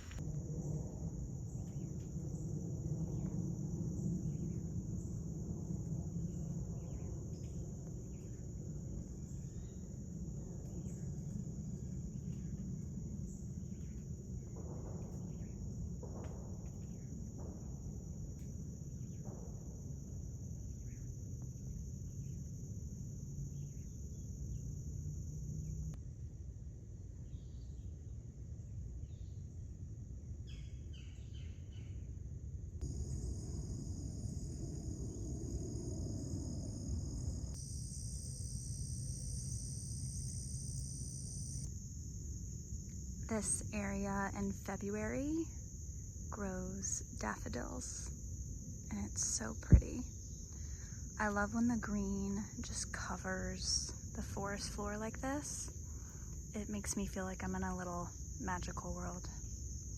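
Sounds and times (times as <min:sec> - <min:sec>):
chorus of crickets: 0:00.0 - 0:59.9
low rumble: 0:32.8 - 0:41.7.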